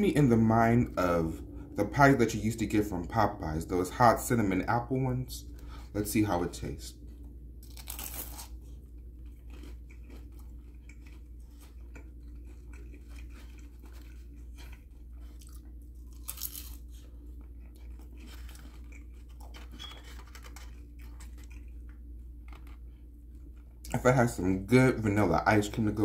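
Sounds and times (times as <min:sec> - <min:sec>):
crunchy chewing: 0:06.9 - 0:24.0.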